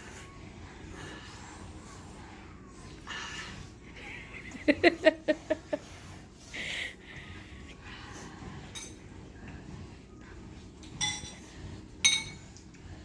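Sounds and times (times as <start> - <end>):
utensil clinking against bowl: 8.7 - 9.0, 10.8 - 12.6.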